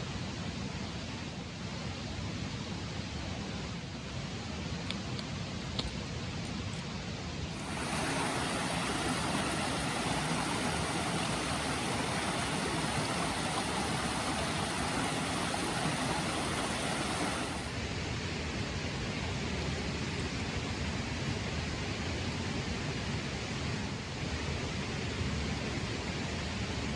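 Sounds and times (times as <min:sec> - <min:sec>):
stream water flowing: 0:07.5 - 0:17.8.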